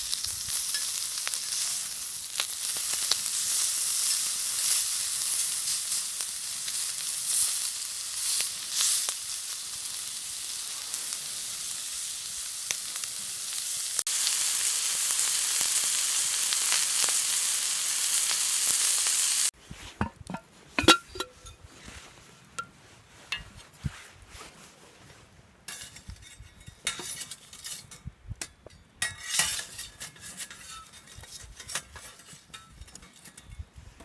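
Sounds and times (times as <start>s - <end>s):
meat sizzling on a griddle: 0.0s - 19.5s.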